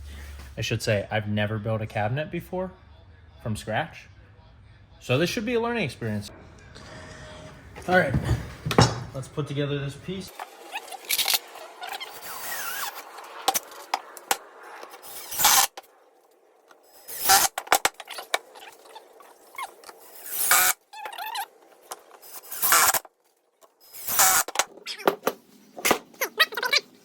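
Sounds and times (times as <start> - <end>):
power drill driving screws: 11.0 - 13.6, 15.1 - 15.8, 16.9 - 17.6, 20.0 - 21.4, 22.2 - 23.0, 23.8 - 24.6.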